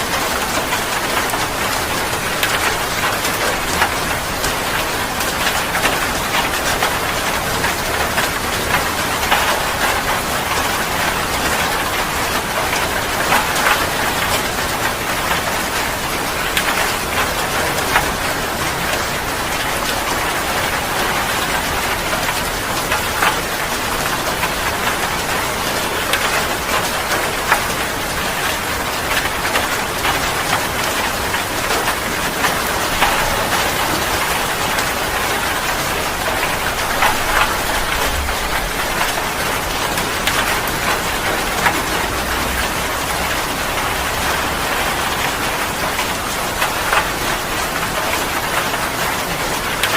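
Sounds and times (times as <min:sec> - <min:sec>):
heavy rain falling: 0:00.0 - 0:49.9
raindrop hits: 0:28.6 - 0:47.1.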